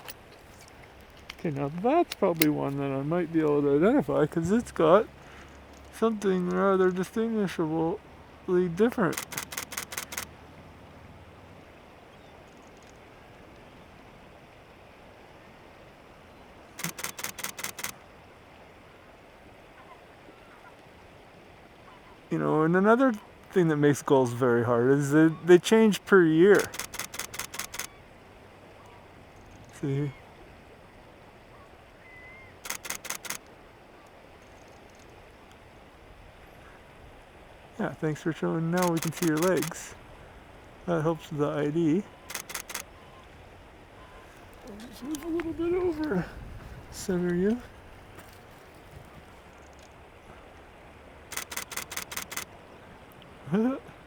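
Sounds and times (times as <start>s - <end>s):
faint background hiss: 0.0s - 54.0s
camera shutter burst: 9.1s - 10.3s, 16.8s - 18.0s, 26.5s - 28.0s, 32.6s - 33.5s, 38.8s - 39.8s, 42.3s - 43.0s, 51.3s - 52.5s.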